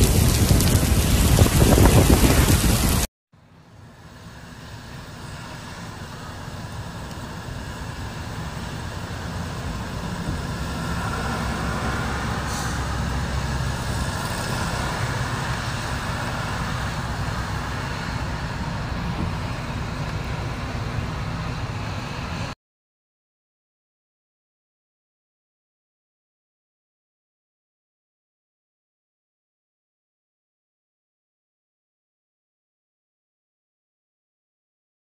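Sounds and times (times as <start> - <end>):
low rumble: 0.0 - 3.1
steady rain on puddles: 0.0 - 3.1, 4.0 - 22.6.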